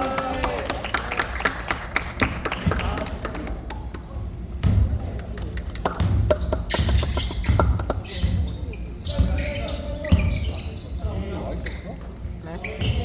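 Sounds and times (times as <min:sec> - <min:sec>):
sneaker squeaks: 0:03.1 - 0:13.0
basketball bouncing on hardwood floor: 0:06.0 - 0:08.5.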